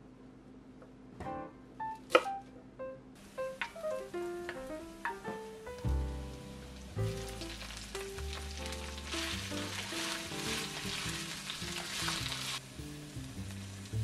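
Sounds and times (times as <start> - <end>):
vegetables sizzling in hot oil: 3.2 - 14.0.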